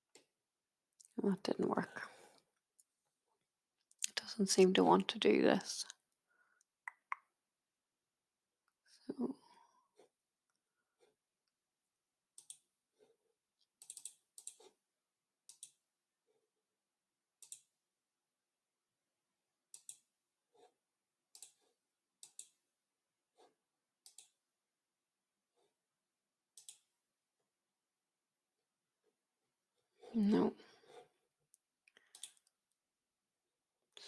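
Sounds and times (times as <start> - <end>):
computer mouse clicking: 12.4 - 12.6, 13.8 - 14.7, 15.5 - 15.8, 17.4 - 17.7, 19.7 - 20.0, 21.3 - 21.6, 22.2 - 22.6, 24.0 - 24.4, 26.6 - 26.9, 32.1 - 32.5.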